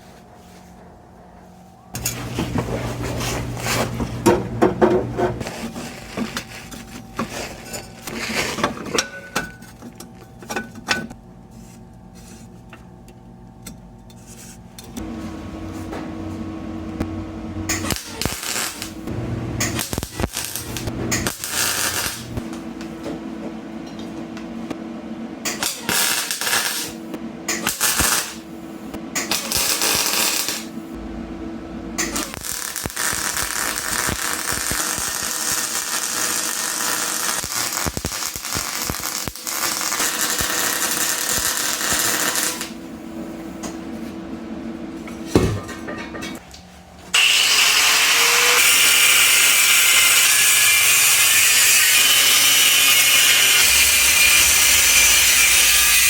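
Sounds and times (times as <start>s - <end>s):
steady low hum: 0.0s - 25.6s, 30.4s - 34.6s
welding crackling and hissing: 2.0s - 4.3s, 17.7s - 22.6s, 25.5s - 30.9s, 32.0s - 42.8s, 47.1s - 56.0s.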